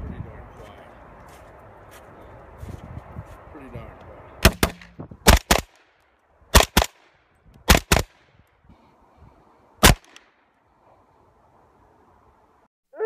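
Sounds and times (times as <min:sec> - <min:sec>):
suppressed rifle shots: 0:04.4 - 0:05.8, 0:06.5 - 0:07.1, 0:07.7 - 0:08.2, 0:09.8 - 0:10.2.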